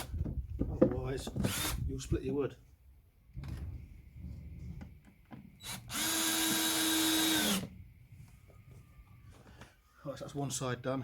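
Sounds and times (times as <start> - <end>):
power drill drilling into wood: 1.5 - 1.8, 5.6 - 7.7.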